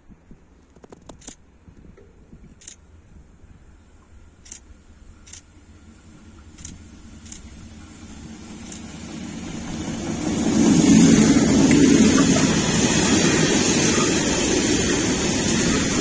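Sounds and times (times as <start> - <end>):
freight train rumble: 2.3 - 16.0.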